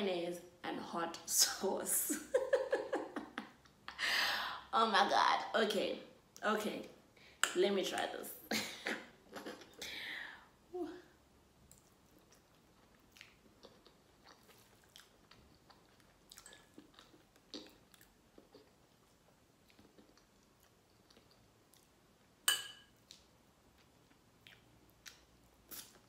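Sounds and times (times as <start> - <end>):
soft chewing of food: 9.2 - 9.8, 11.1 - 26.0.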